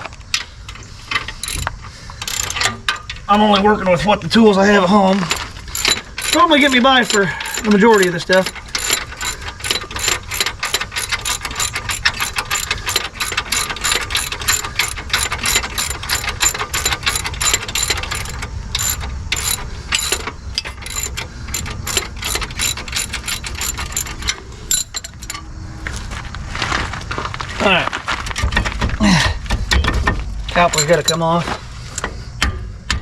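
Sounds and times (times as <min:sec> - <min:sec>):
ratchet wrench clicking: 0:00.3 - 0:03.3, 0:05.2 - 0:25.4, 0:30.5 - 0:31.3.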